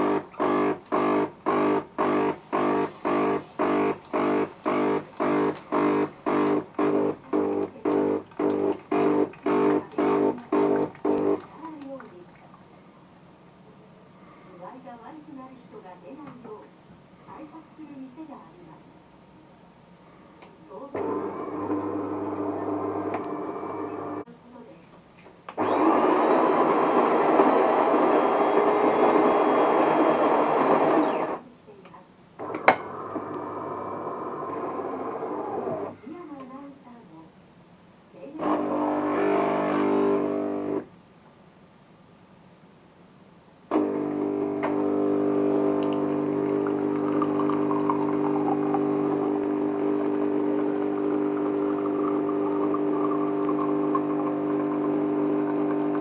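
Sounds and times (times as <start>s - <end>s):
espresso machine grinding hum: 0.0s - 11.5s, 21.0s - 24.2s, 25.6s - 31.4s, 32.4s - 36.0s, 38.4s - 40.8s, 43.7s - 56.0s.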